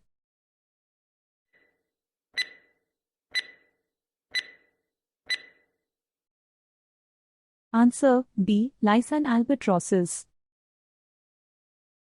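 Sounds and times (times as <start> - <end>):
timer ticking with ringing tone: 2.4 - 5.8.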